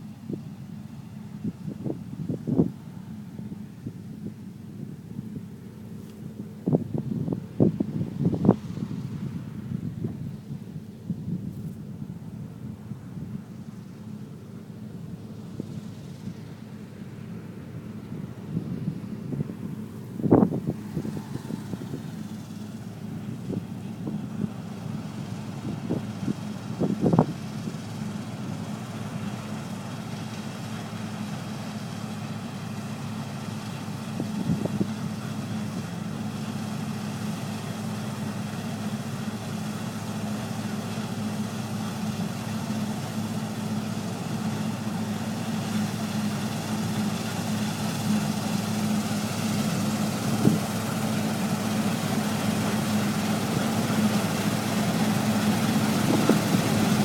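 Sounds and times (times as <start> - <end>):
combine harvester engine hum: 0.0 - 57.0.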